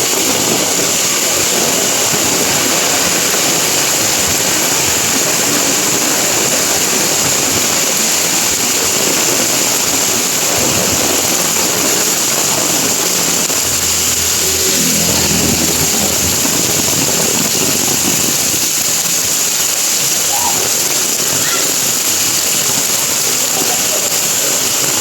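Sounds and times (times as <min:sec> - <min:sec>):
heavy rain on leaves: 0:00.0 - 0:25.0
low engine hum: 0:11.7 - 0:18.9.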